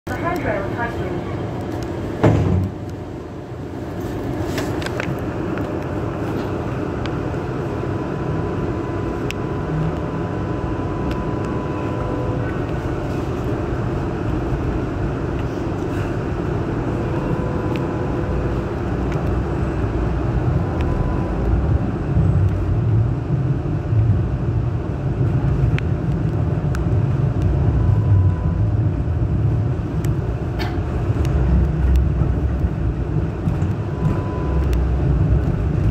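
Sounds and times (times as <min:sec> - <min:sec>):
wheels rumbling on rail: 0:00.1 - 0:35.9
faint whine: 0:06.2 - 0:14.5, 0:26.8 - 0:29.4.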